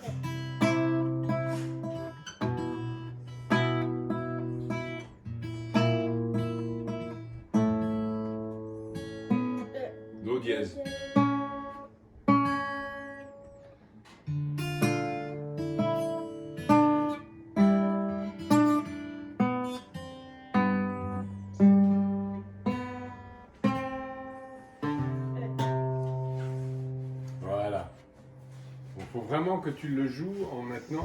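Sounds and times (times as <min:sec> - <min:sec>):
acoustic guitar plucked slowly: 0:00.0 - 0:29.3.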